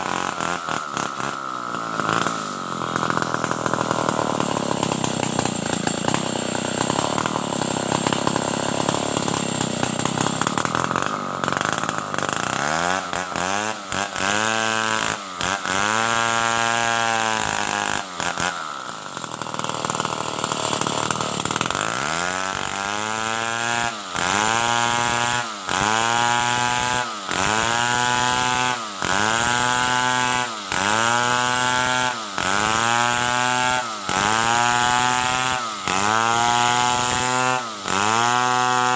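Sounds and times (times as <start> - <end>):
chainsaw revving through timber: 0.0 - 38.9.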